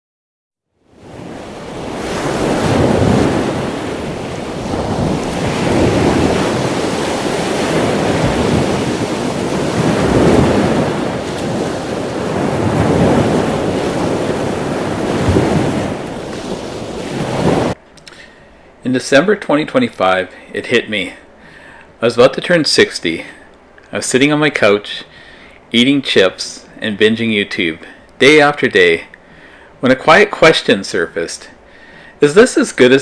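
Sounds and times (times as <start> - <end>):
ocean surf breaking: 0.9 - 17.8
wind buffeting microphone: 1.0 - 17.8.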